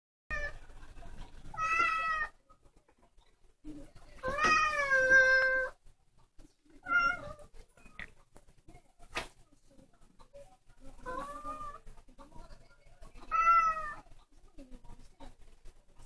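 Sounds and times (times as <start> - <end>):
cat meowing: 1.6 - 2.3, 4.2 - 5.7, 6.8 - 7.4, 11.1 - 11.8, 13.3 - 14.0.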